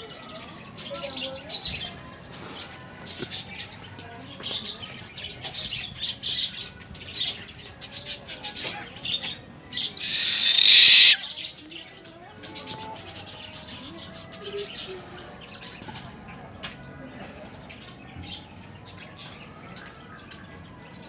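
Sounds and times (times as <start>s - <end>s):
owl screeching: 10.0s - 11.2s
short high bird chirps: 10.0s - 11.2s.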